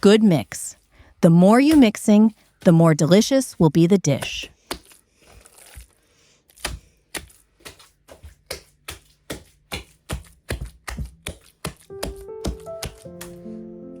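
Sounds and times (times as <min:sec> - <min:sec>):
wet slaps of kneading meat: 0:04.2 - 0:13.6.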